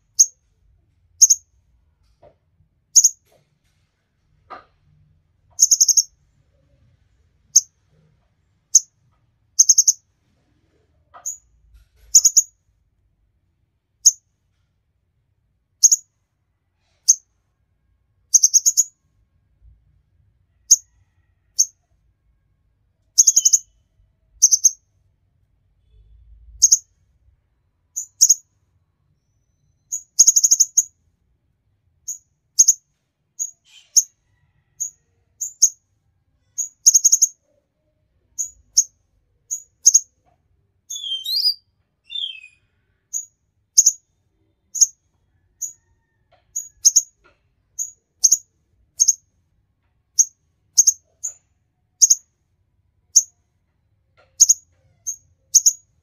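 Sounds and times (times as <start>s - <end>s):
songbird chirping: 1.2s - 1.5s, 3.0s - 3.2s, 5.5s - 6.1s, 9.6s - 10.0s, 12.1s - 12.5s, 18.3s - 19.0s, 23.1s - 23.8s, 24.4s - 24.8s, 28.0s - 28.5s, 29.3s - 30.9s, 36.6s - 37.4s, 40.8s - 47.2s, 50.2s - 51.4s, 52.0s - 52.3s.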